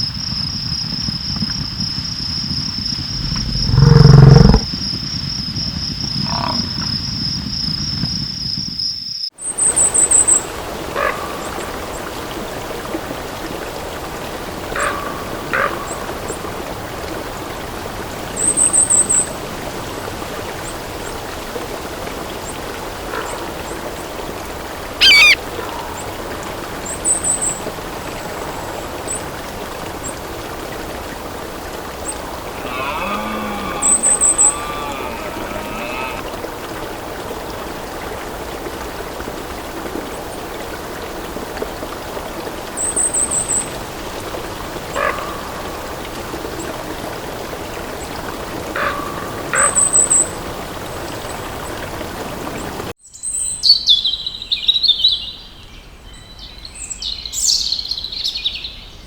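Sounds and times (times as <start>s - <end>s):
high-pitched insect trill: 3.1s - 4.6s
high bird chirps: 25.0s - 25.4s
sweeping bird call: 25.0s - 25.4s, 32.4s - 36.3s.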